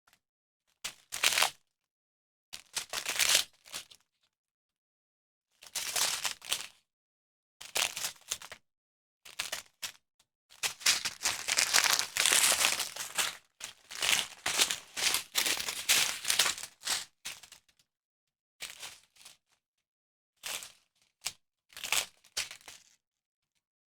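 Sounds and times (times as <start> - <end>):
plastic packaging crinkling: 10.8 - 17.0.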